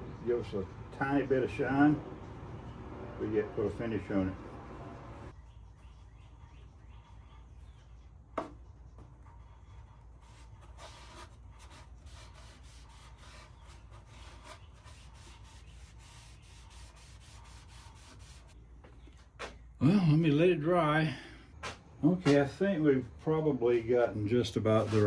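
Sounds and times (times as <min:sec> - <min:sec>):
rag wiping wood: 0:10.2 - 0:18.6, 0:24.7 - 0:25.0.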